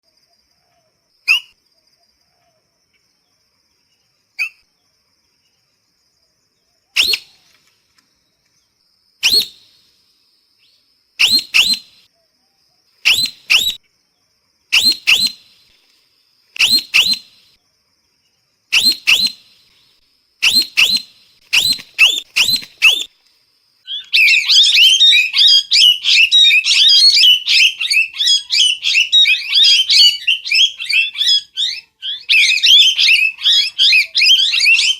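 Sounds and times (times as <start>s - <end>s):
parrot calling: 11.2s - 12.0s, 13.0s - 13.8s, 14.8s - 15.4s, 16.6s - 17.4s, 18.7s - 19.4s, 20.4s - 23.1s, 23.9s - 34.9s.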